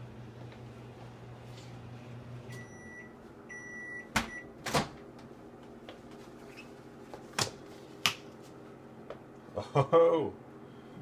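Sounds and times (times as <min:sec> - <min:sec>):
microwave oven humming: 0:00.0 - 0:07.8, 0:08.4 - 0:11.0
microwave beeps: 0:02.4 - 0:04.6.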